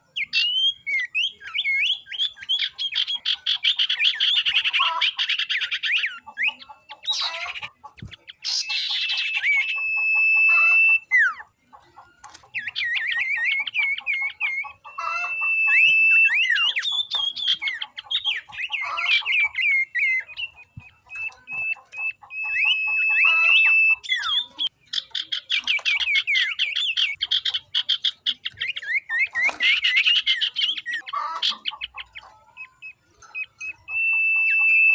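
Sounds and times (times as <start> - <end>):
birds chattering trills: 0.0 - 34.9
bird long steady whistle: 9.2 - 11.1, 15.0 - 16.7, 33.9 - 34.9.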